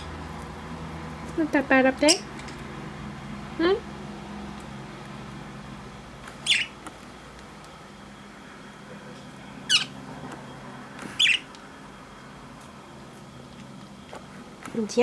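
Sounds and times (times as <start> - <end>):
budgerigar chirps: 6.4 - 6.8, 9.7 - 10.0, 11.2 - 11.5.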